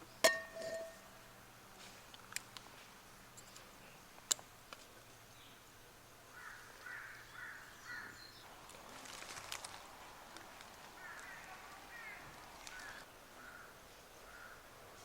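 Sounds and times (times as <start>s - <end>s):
crow cawing: 6.3s - 8.2s, 11.0s - 14.7s.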